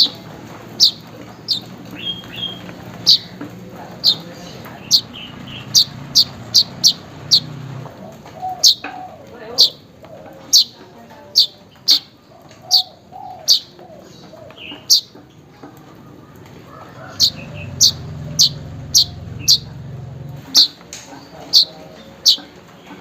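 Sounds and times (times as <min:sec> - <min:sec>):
faint low bird calls: 0:00.0 - 0:23.0
bird sharp chirps: 0:00.8 - 0:03.4, 0:04.8 - 0:07.5, 0:17.1 - 0:19.8
low rumble: 0:16.6 - 0:20.6.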